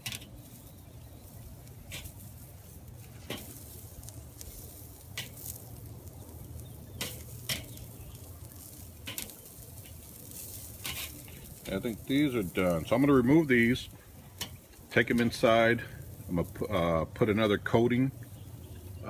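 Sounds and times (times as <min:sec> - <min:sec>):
metal utensil clicking on grill: 0:00.0 - 0:00.4, 0:01.6 - 0:02.2, 0:03.0 - 0:05.6, 0:06.6 - 0:11.8, 0:14.4 - 0:15.4
faint steady sizzle: 0:00.0 - 0:19.0.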